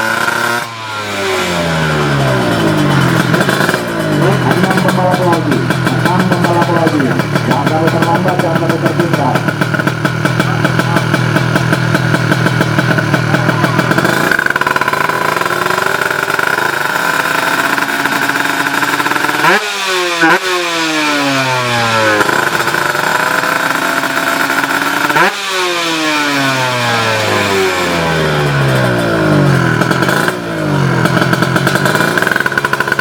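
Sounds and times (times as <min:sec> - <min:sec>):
motorbike engines revving and accelerating: 0:00.0 - 0:33.0.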